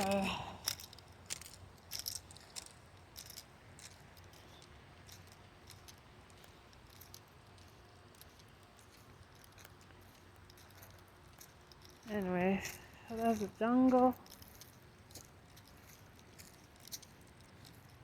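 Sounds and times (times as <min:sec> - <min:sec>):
footsteps on wooded path: 0:00.0 - 0:18.0.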